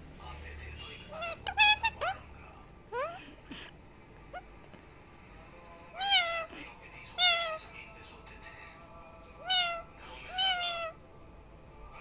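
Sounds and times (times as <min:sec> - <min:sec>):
cat meowing: 0:01.1 - 0:02.2, 0:05.9 - 0:07.7, 0:09.4 - 0:11.0.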